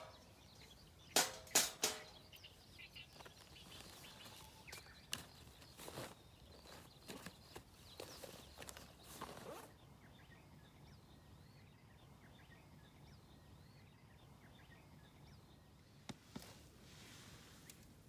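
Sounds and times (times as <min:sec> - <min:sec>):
small birds chirping: 0:00.0 - 0:18.0
rustling handling noise: 0:01.2 - 0:09.7.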